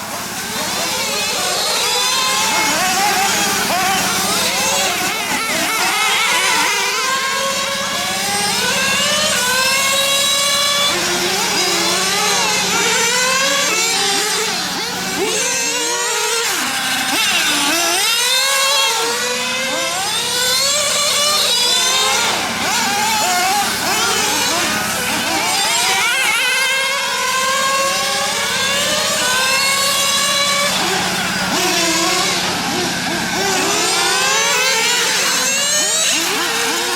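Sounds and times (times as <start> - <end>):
rc car engines revving: 0.0 - 36.9.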